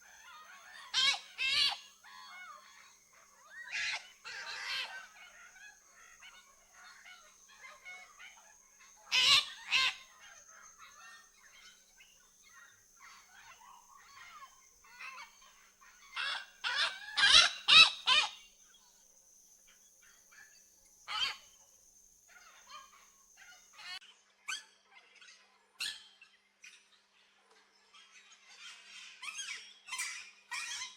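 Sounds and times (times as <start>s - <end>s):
parrots squawking: 16.1s - 18.4s.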